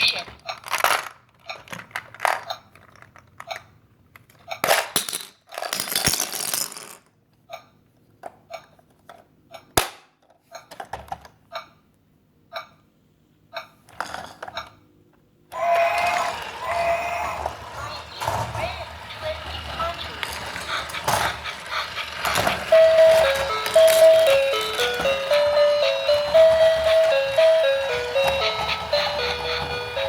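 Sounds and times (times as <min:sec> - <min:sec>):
plastic toy pieces clattering: 0:00.4 - 0:07.1, 0:17.4 - 0:25.6.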